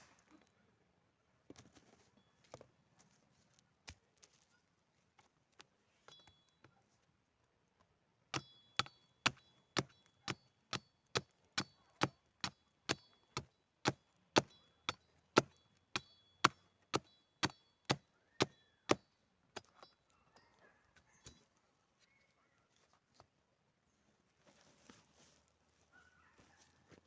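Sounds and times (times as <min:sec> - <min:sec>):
hammer blows with metallic ring: 0:08.4 - 0:11.0, 0:11.6 - 0:19.2.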